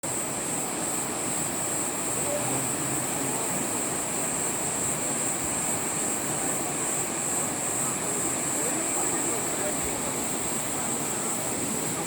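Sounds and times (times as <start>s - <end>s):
high-pitched hiss: 0.0s - 12.0s.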